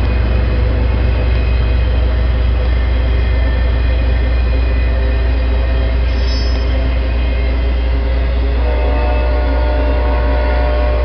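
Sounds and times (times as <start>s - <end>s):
train wheels rumbling on rails: 0.0s - 11.0s
brief high squeal: 6.1s - 6.8s.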